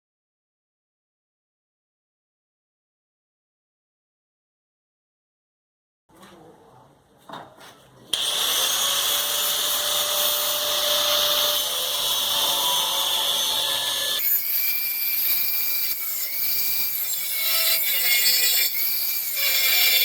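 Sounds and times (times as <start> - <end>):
grinder motor whine: 8.2 - 14.2
angle grinder cutting metal: 8.2 - 20.0.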